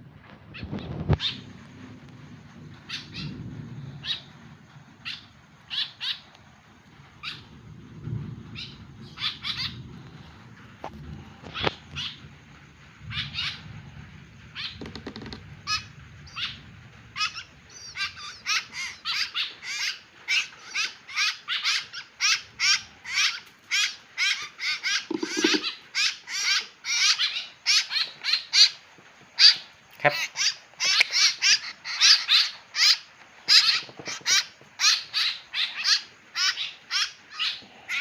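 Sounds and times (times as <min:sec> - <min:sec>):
bird giving harsh calls: 0:17.2 - 0:28.1.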